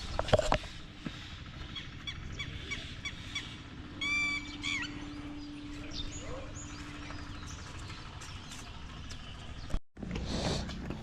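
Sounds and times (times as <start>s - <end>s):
bird chirps: 1.6s - 9.8s
bird honking call: 1.7s - 7.7s.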